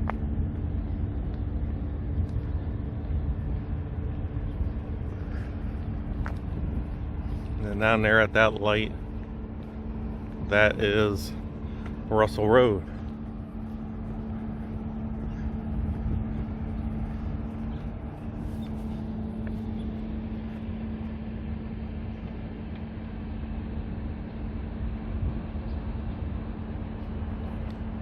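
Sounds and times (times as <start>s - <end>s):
low hum: 0.0s - 28.0s
traffic rumble: 0.0s - 28.0s.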